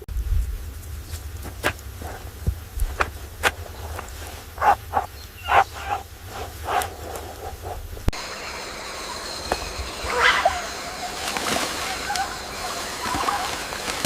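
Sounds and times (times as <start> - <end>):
steady low rumble: 0.0 - 14.0
short animal calls: 4.6 - 7.8.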